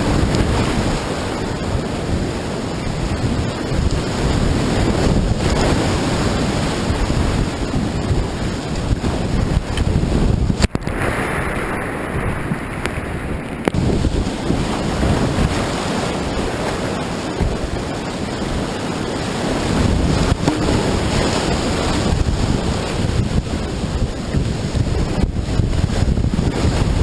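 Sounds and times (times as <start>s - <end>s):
wind buffeting microphone: 0.0s - 27.0s
river rapid rushing: 13.1s - 25.3s.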